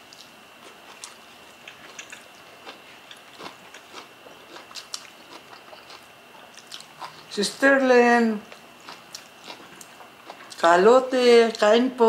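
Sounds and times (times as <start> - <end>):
soft chewing: 0.0 - 7.4, 8.5 - 10.7
wet mouth clicks: 1.7 - 2.3.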